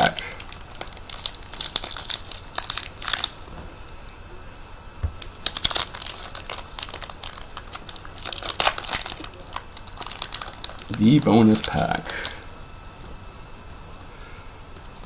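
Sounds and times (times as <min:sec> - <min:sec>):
card pack wrapper crinkling and tearing: 0:00.0 - 0:03.5, 0:05.2 - 0:13.2.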